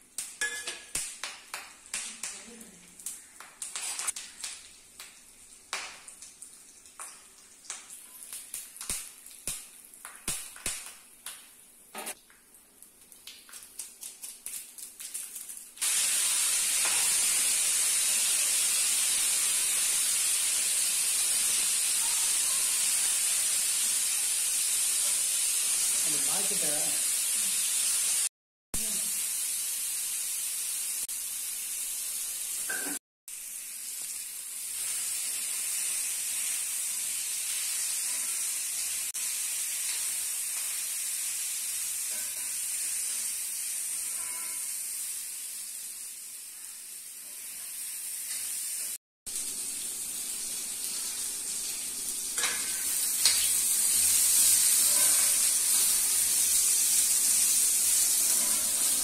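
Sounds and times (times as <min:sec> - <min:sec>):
potatoes sizzling in oil: 0:00.0 - 0:12.2, 0:12.9 - 0:59.0
spatula scraping pan: 0:54.4 - 0:56.0, 0:57.8 - 0:59.0.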